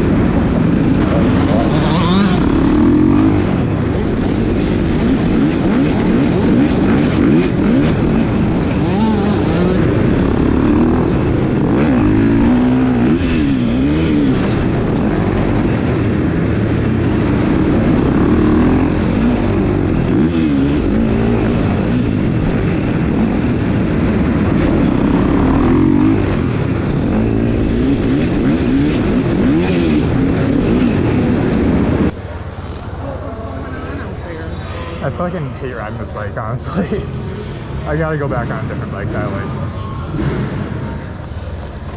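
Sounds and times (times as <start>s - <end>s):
motocross bike engine revving: 0.0s - 35.5s.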